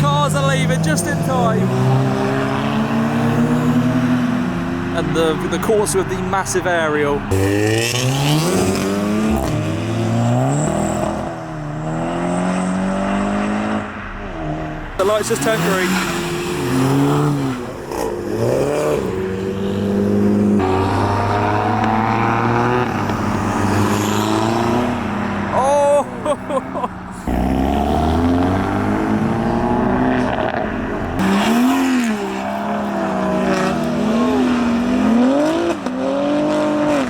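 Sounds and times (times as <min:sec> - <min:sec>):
car engines accelerating: 0:00.0 - 0:37.0
person shouting: 0:25.5 - 0:26.8, 0:34.0 - 0:34.7.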